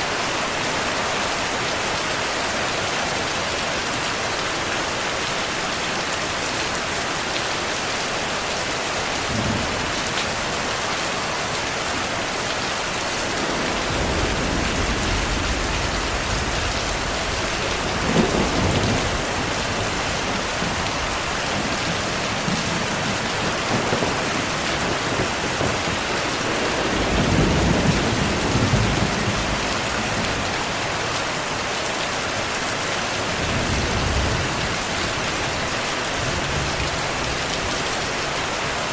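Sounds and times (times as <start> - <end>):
heavy rain: 0.0 - 38.9
thunder rumbling: 12.8 - 30.7.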